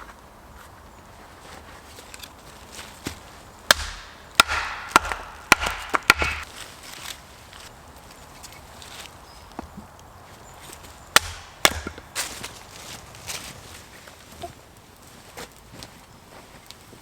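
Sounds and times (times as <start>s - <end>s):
axe chopping wood: 3.1s - 6.5s, 11.1s - 12.5s
wood splintering: 3.7s - 7.0s, 11.1s - 12.5s.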